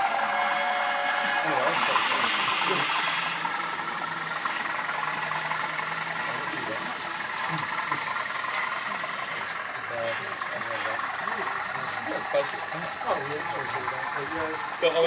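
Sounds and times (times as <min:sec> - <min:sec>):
steady low hum: 0:01.1 - 0:15.0
hiss: 0:01.2 - 0:05.2
murmur of voices: 0:01.2 - 0:15.0.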